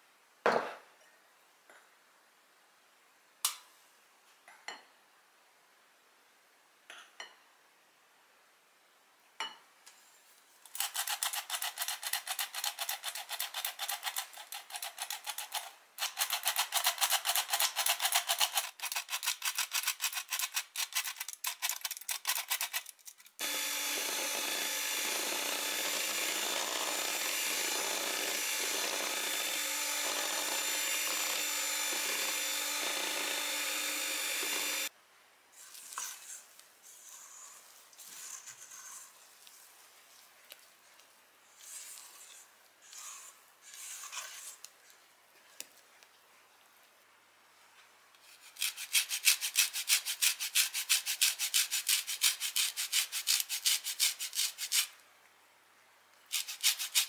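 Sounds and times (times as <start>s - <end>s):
kitchen appliance motor running: 23.4s - 34.9s.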